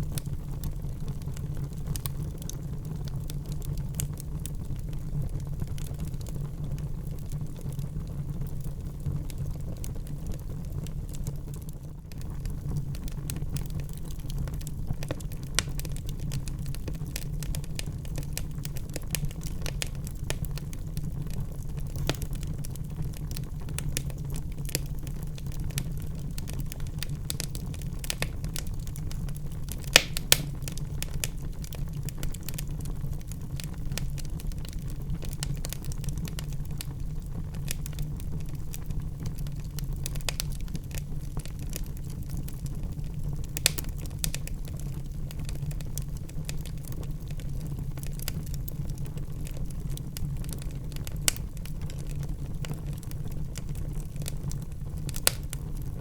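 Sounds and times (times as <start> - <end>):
wood fire crackling: 0.0 - 56.0
fire pops: 11.1 - 49.6, 50.2 - 55.9.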